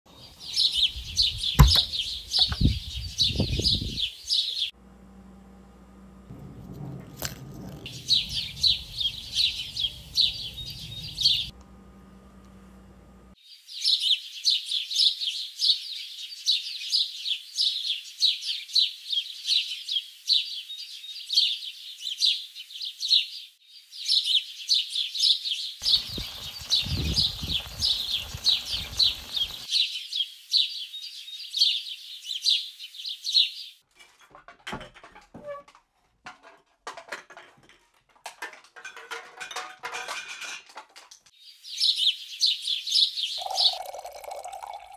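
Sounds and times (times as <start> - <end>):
birds chirping and singing: 0.1 - 4.7, 7.8 - 11.5, 13.5 - 33.8, 41.4 - 44.8.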